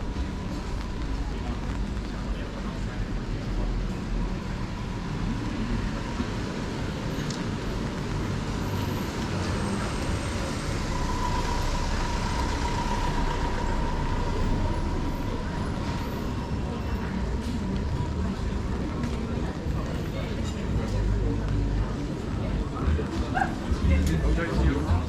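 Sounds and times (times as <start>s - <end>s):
steady whine: 10.4s - 17.2s.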